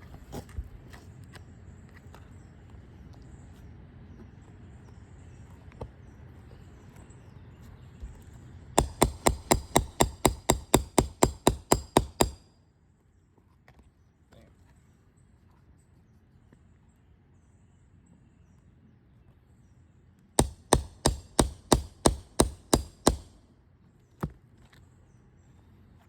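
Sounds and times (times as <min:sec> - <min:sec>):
hammer striking rapidly: 0:08.8 - 0:12.4, 0:20.4 - 0:23.4.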